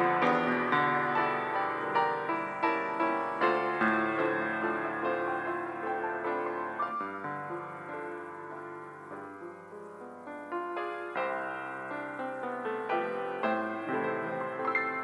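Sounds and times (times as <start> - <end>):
slow gentle piano piece: 0.0 - 15.0.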